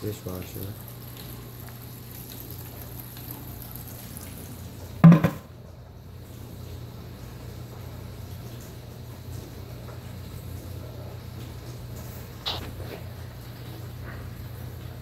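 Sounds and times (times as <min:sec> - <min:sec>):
dishwasher humming: 0:00.0 - 0:15.0
water washing inside: 0:00.0 - 0:15.0
loud knock: 0:05.0 - 0:05.4.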